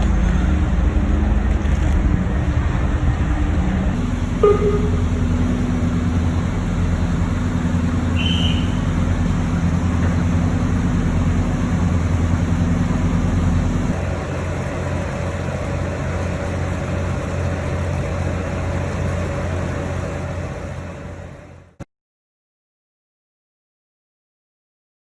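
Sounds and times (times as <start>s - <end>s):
ferry engines droning: 0.0s - 21.8s
light hum with high tone: 4.2s - 9.0s.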